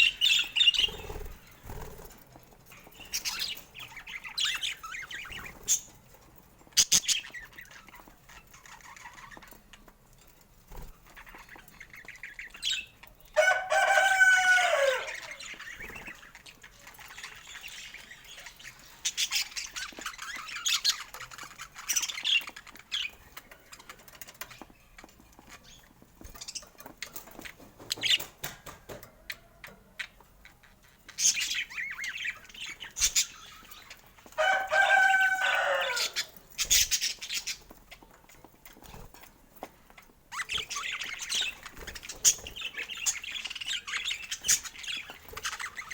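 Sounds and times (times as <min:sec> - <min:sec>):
birds chirping: 0:00.0 - 0:45.9
rooster crowing: 0:13.4 - 0:15.4, 0:34.4 - 0:36.2.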